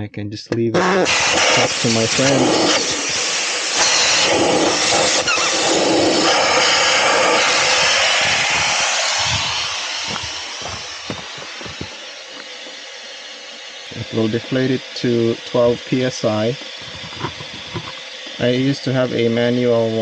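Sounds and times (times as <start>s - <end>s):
air hissing out of tire: 0.8s - 20.0s.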